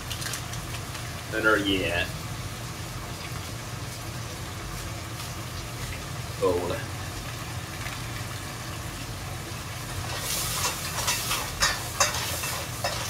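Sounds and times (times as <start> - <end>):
food sizzling in a pot: 0.0 - 13.0
spatula scraping a pot: 10.1 - 13.0.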